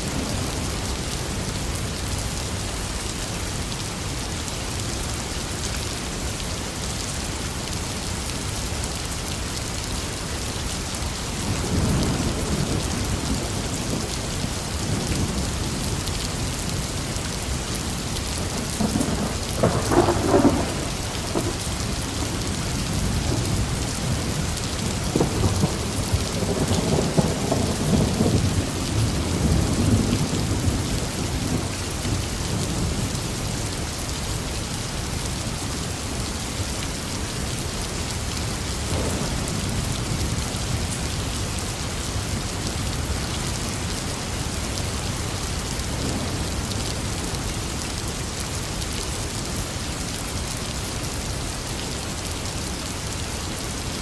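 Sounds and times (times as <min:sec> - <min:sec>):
heavy rainfall: 0:00.0 - 0:54.0
thunder rumbling: 0:11.5 - 0:33.0, 0:38.8 - 0:41.0.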